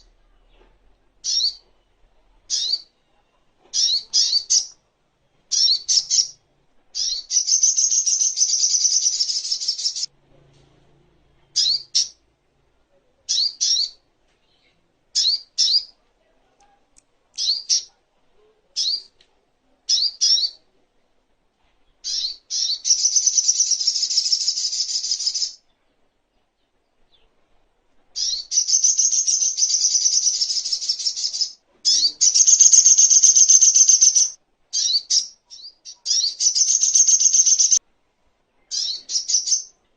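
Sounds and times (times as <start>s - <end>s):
bird rapid high trills: 32.2s - 34.4s, 36.4s - 37.8s.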